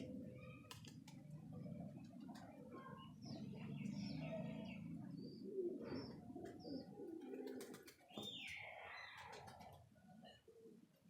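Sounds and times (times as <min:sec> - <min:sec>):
pigeons cooing: 0:01.5 - 0:11.0.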